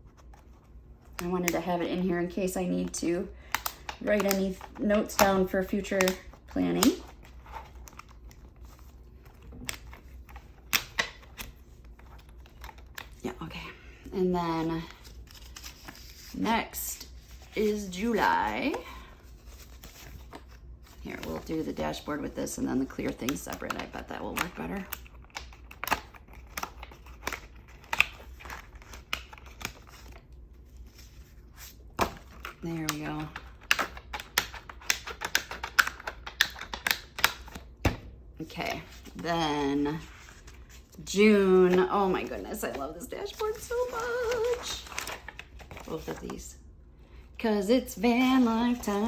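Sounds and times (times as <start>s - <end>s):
paper pages clicking onto discs: 2.8s - 8.4s
paper rustling: 38.7s - 46.4s.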